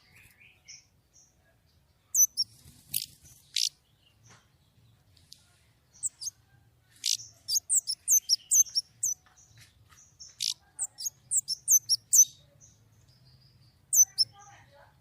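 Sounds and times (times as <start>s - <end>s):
bird singing whistled notes: 2.1s - 3.7s, 7.0s - 9.2s, 10.4s - 12.4s, 13.2s - 14.4s.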